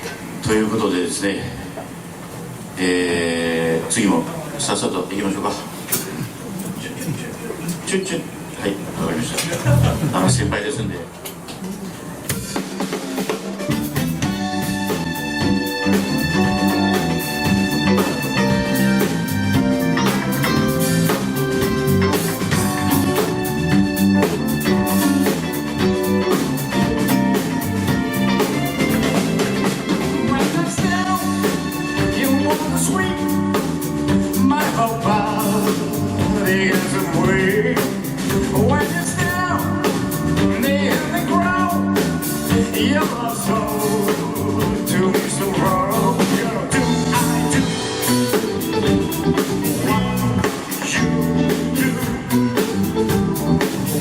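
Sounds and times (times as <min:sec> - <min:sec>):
live pop-rock band: 0:11.3 - 0:54.0
lead melody bending in pitch: 0:14.3 - 0:30.4.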